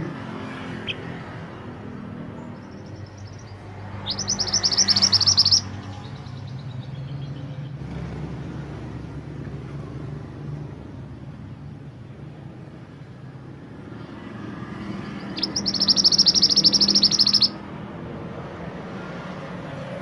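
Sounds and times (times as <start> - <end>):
songbird trilling: 2.3 - 7.8, 15.0 - 17.6.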